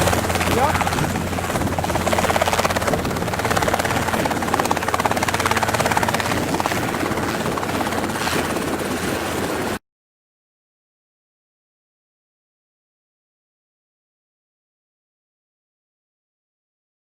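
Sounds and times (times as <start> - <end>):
helicopter engine and rotor: 0.0 - 9.8.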